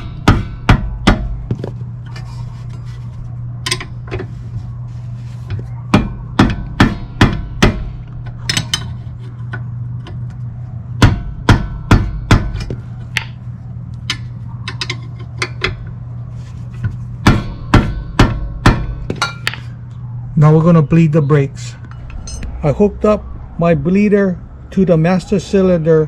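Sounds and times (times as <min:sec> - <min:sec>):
steady low hum: 0:00.0 - 0:26.0
hand tools striking metal: 0:03.6 - 0:04.2, 0:05.9 - 0:10.2, 0:14.0 - 0:15.9, 0:17.2 - 0:19.7, 0:21.9 - 0:22.5.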